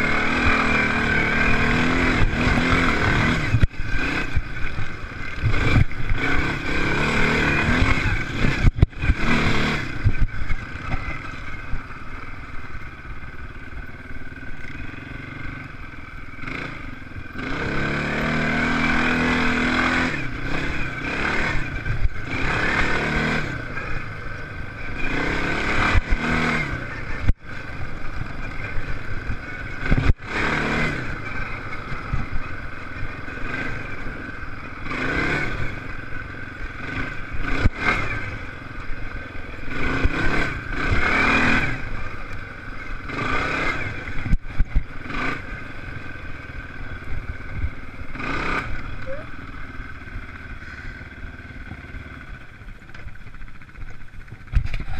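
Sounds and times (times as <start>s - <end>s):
motocross bikes racing past: 0.0s - 54.9s.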